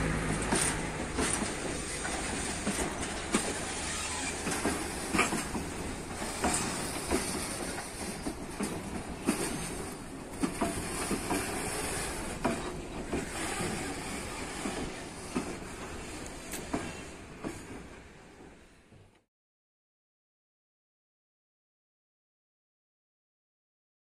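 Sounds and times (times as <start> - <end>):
train wheels clickety-clack: 0.0 - 19.2
steady train rumble: 0.0 - 19.3.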